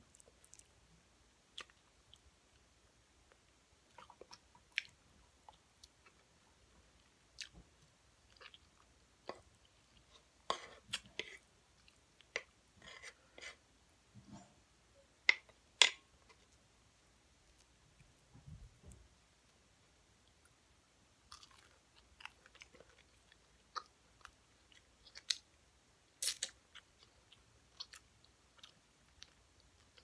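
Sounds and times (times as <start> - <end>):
person chewing: 0.1 - 0.7, 1.5 - 2.6, 8.2 - 13.6, 21.3 - 25.5, 26.1 - 30.0.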